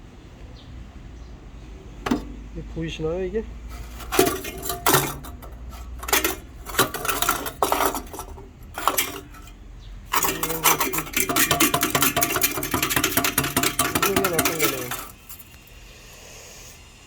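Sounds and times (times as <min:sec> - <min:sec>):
muffler metal clanking and rattling: 0:02.0 - 0:02.6, 0:03.7 - 0:15.6.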